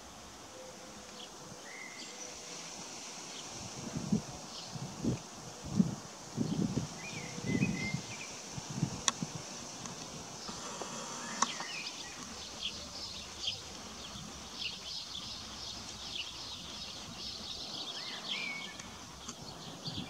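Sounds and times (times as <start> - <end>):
steady high hiss: 0.0 - 20.0
small birds chirping: 6.3 - 20.0.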